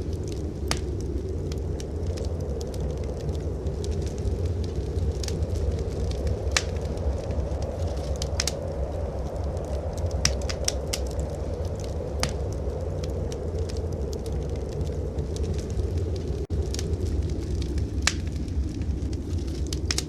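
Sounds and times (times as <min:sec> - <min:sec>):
blizzard wind rumble: 0:00.0 - 0:20.0
wood fire crackling: 0:00.0 - 0:20.0
sharp pops of fire: 0:00.1 - 0:01.1, 0:02.2 - 0:08.6, 0:09.6 - 0:12.5, 0:16.5 - 0:20.0.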